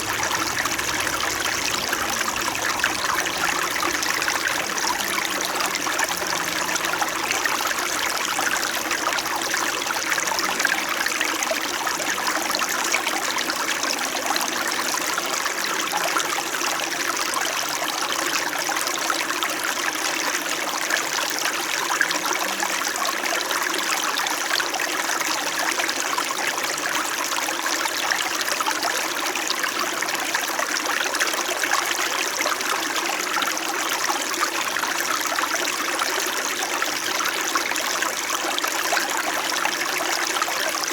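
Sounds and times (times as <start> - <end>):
stream trickling over rocks: 0.0 - 40.9.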